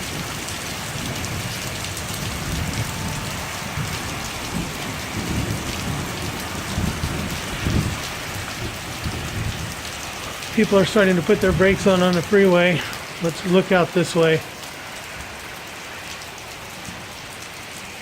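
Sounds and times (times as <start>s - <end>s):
thunder rumble: 0.0s - 14.0s
heavy rain: 0.0s - 18.0s.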